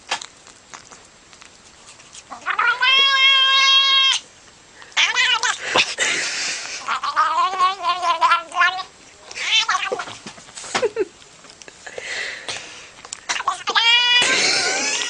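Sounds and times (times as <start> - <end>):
cat meowing: 2.3 - 4.2, 5.0 - 5.6, 6.9 - 10.1, 13.4 - 14.2.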